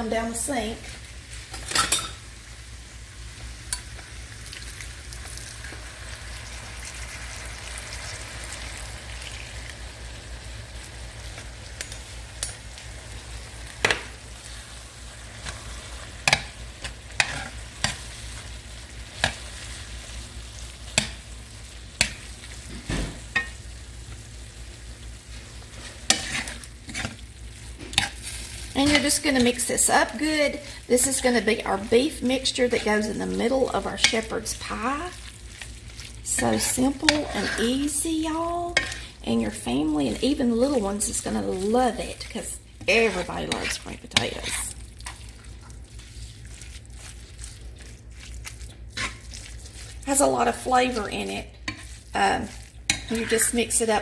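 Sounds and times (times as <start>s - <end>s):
meat sizzling in a pan: 0.0s - 54.0s
spoon stirring and knocking pan: 16.2s - 18.2s, 19.1s - 19.8s, 20.9s - 21.3s, 22.0s - 23.6s, 26.0s - 27.2s, 27.8s - 29.9s, 36.3s - 41.7s, 50.1s - 54.0s.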